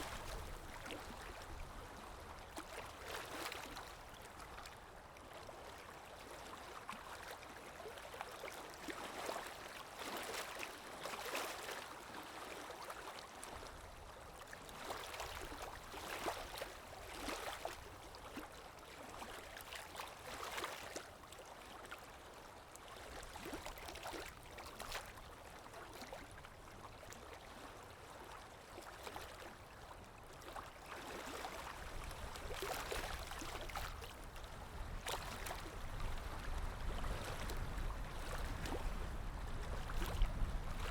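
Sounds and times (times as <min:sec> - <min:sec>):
calm waves lapping: 0:00.0 - 0:40.9.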